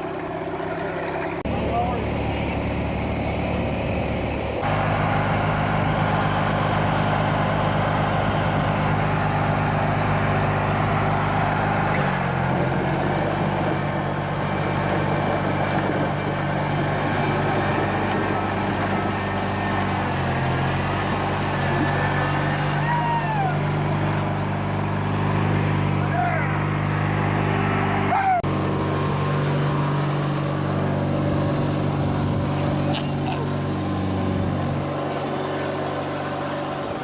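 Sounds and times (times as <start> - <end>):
garden tractor engine running: 0.0 - 37.0.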